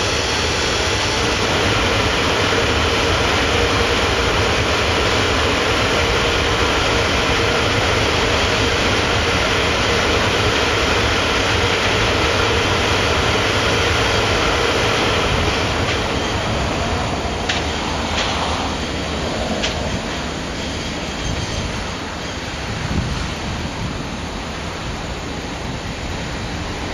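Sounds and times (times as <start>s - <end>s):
freight train wagons rumbling: 0.0s - 26.9s
wheel squeal: 19.8s - 22.6s.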